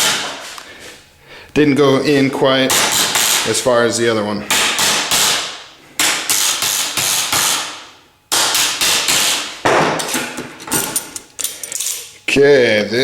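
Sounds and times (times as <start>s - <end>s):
hammer striking metal into wood: 2.7s - 3.4s, 4.5s - 10.4s.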